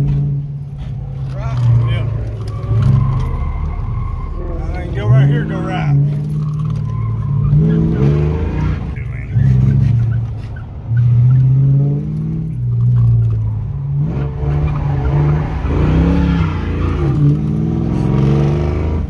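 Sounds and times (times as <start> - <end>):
car engine revving hard: 1.2 - 19.0.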